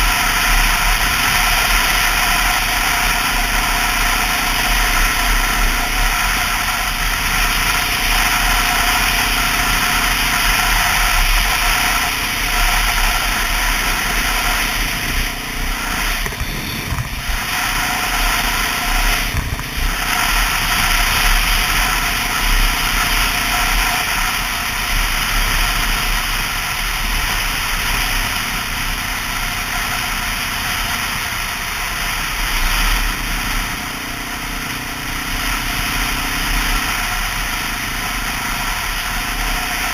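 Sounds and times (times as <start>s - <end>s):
motorcycle engine running: 0.0s - 39.9s
wind noise: 5.1s - 27.6s.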